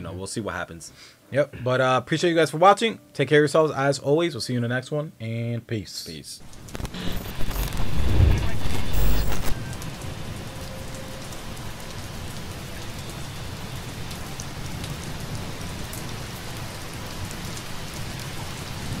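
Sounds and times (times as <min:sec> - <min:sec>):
rain patter: 0:06.4 - 0:19.0
low rumble: 0:06.5 - 0:09.6.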